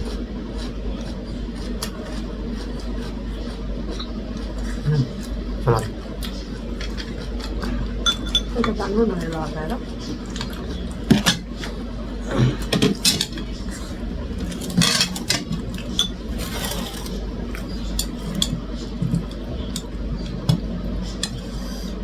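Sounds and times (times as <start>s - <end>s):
steady low hum: 0.0s - 22.0s
utensils clinking against dishes: 6.8s - 11.7s, 12.6s - 13.6s, 14.4s - 21.4s.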